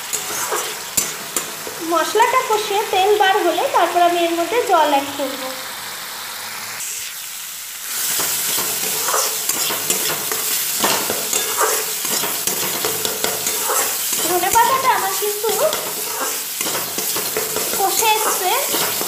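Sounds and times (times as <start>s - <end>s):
spatula scraping a pan: 0.0s - 1.8s, 7.9s - 19.0s
paste sizzling in hot oil: 0.0s - 19.0s.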